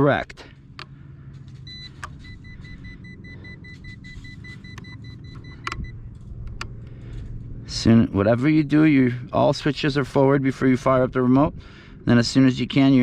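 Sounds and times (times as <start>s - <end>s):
radio transmitter beeping: 1.6s - 6.1s
light handling clicks: 4.7s - 7.0s.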